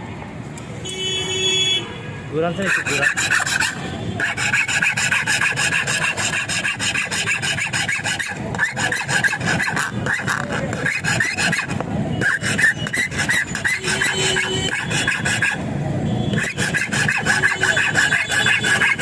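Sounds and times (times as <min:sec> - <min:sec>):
metal rasping on metal: 0:02.5 - 0:15.6, 0:16.3 - 0:19.0.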